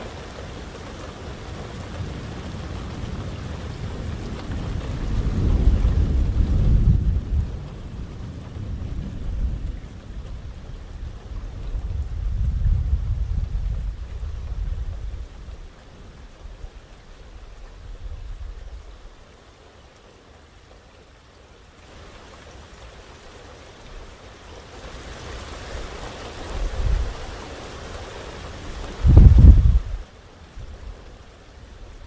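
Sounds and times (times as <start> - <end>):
heavy rain hissing: 0.0 - 32.0
low thunder rumble: 1.7 - 19.1, 28.6 - 31.2.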